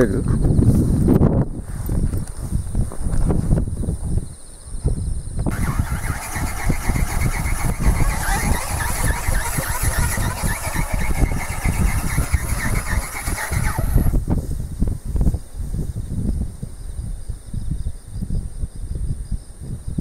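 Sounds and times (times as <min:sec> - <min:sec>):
wind buffeting on microphone: 0:00.0 - 0:20.0
electric motor and flapping gearbox: 0:05.5 - 0:14.2.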